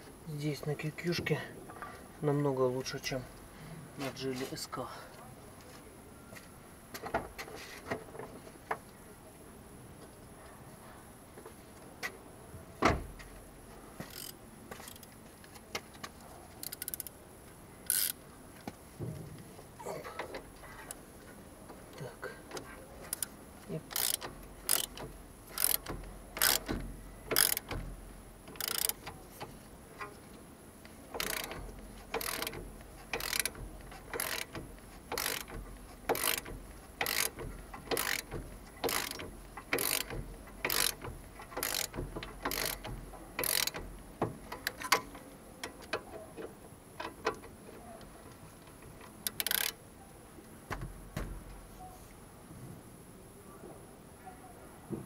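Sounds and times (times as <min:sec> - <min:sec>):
ratchet wrench clicking: 0:14.1 - 0:15.1, 0:16.6 - 0:17.1, 0:17.9 - 0:18.2, 0:23.9 - 0:27.8, 0:28.5 - 0:29.2, 0:31.1 - 0:43.9, 0:49.2 - 0:49.8.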